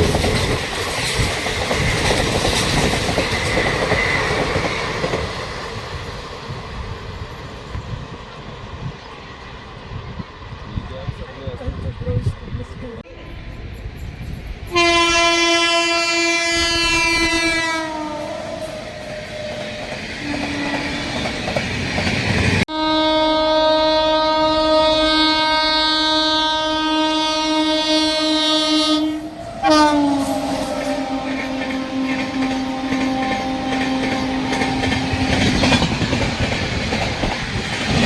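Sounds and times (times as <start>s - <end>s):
moving train rumble: 0.0s - 38.0s
locomotive horn blasts: 14.7s - 18.6s, 22.7s - 35.8s.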